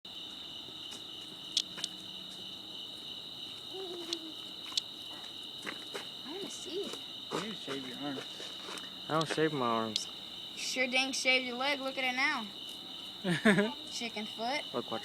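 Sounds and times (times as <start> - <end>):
cicada buzzing: 0.1 - 15.0.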